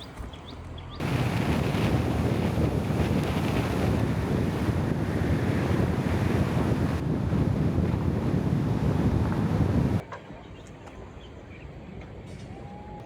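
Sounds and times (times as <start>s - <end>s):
wind buffeting microphone: 1.0s - 10.0s.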